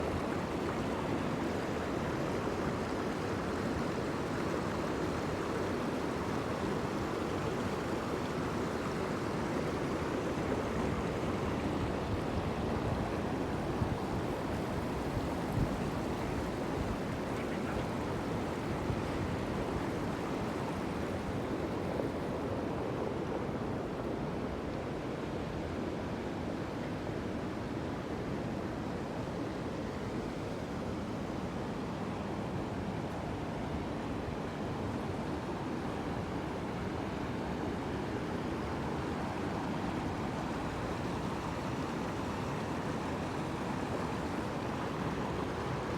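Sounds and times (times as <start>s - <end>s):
water rushing: 32.1s - 45.9s.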